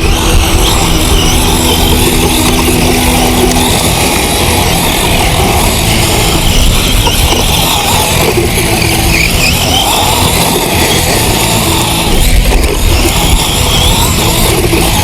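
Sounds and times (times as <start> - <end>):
electric motor whine: 0.0 - 15.0
tyres on dirt: 0.0 - 15.0.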